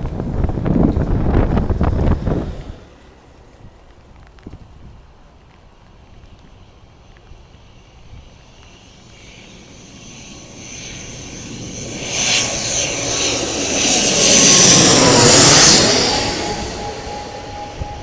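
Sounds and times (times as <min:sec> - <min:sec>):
turboprop aircraft droning past: 0:06.3 - 0:18.0.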